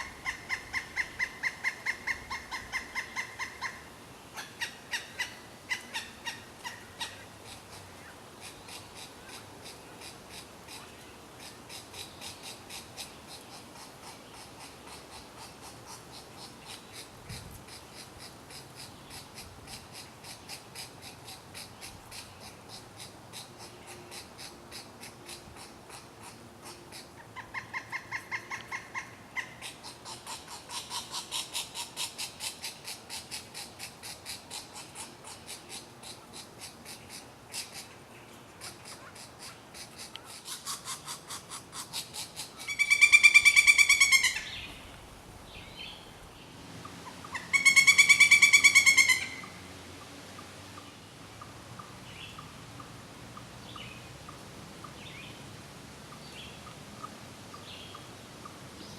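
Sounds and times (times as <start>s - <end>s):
woodpecker calling rapid notes: 0.0s - 17.1s, 17.7s - 37.9s, 38.6s - 44.8s, 47.0s - 49.6s.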